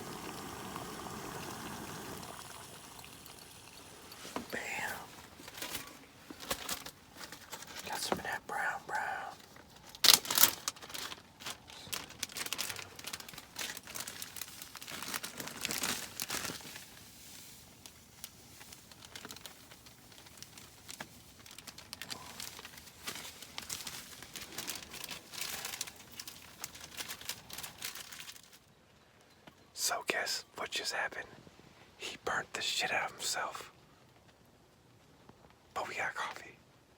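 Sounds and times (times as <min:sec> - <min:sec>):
gear rustling and crinkling: 0:03.0 - 0:29.6.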